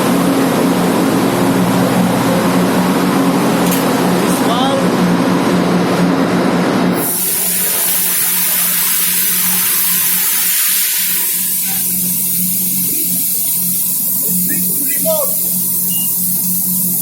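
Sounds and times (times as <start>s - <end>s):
low machinery hum: 0.0s - 7.0s
compressed air hissing: 6.9s - 17.0s.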